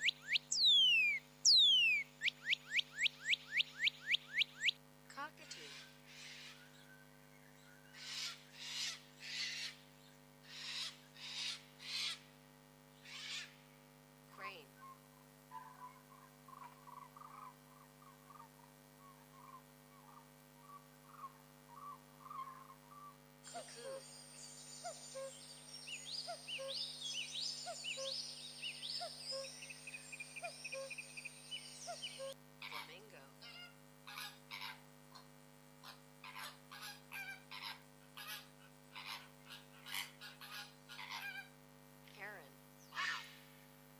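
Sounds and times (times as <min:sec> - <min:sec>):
rising bird whistles: 0:00.0 - 0:04.8
birds chirping: 0:00.0 - 0:12.2, 0:14.4 - 0:34.7
animal hissing screech calls: 0:08.0 - 0:09.8, 0:10.5 - 0:12.2, 0:13.0 - 0:13.5, 0:42.9 - 0:43.4.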